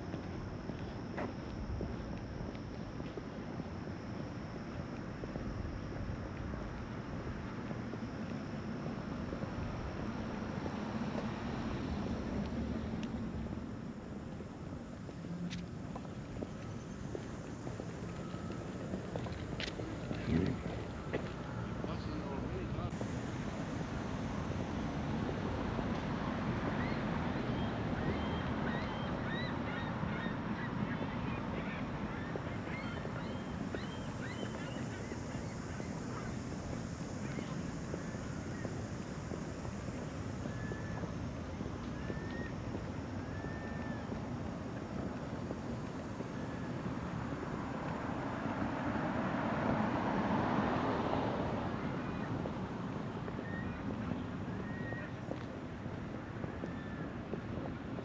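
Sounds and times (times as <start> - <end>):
vehicle passing by: 48.2 - 52.8.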